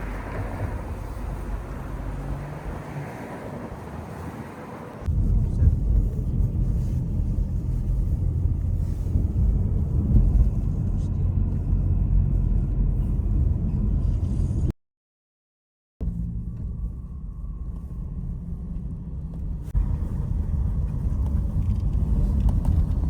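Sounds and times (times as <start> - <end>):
car road and engine rumble: 0.0 - 14.7, 16.0 - 23.0
faint wind noise: 0.0 - 14.7.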